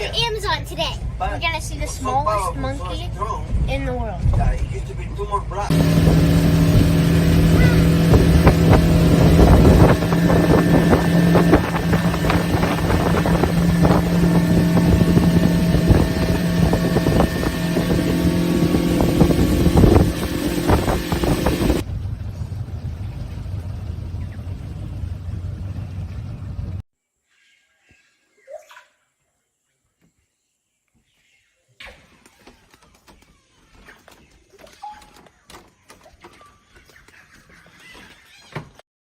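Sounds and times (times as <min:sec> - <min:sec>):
wind buffeting microphone: 0:05.7 - 0:21.8
motorboat engine running: 0:05.7 - 0:26.8.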